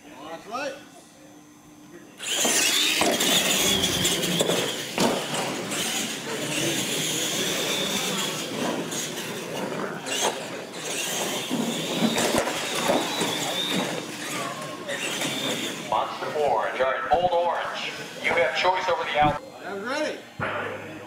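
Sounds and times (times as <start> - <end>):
toy truck motors whining: 2.2 - 16.1.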